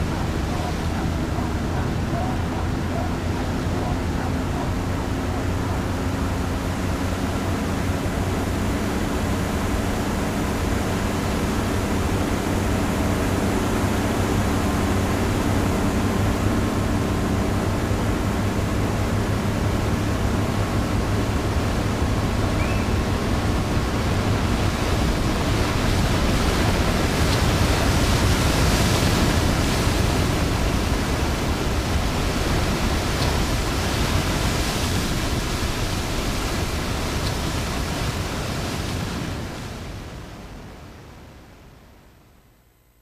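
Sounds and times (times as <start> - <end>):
waterfall roaring: 0.0 - 41.1.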